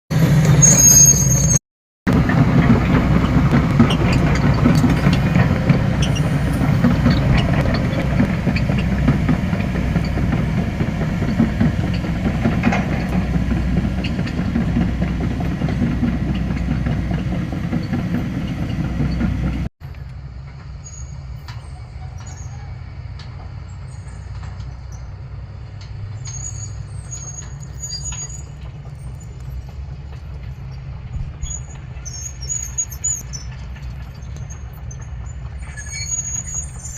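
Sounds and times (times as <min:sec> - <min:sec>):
diesel machinery rumble: 0:00.1 - 0:36.9
engine hum: 0:00.1 - 0:36.9
metal clanking: 0:02.1 - 0:19.7.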